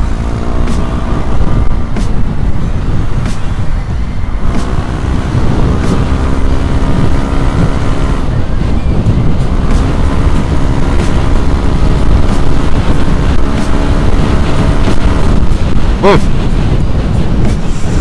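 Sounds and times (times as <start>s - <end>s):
wind noise on microphone: 0.0s - 18.0s
scooter engine running: 4.0s - 16.2s.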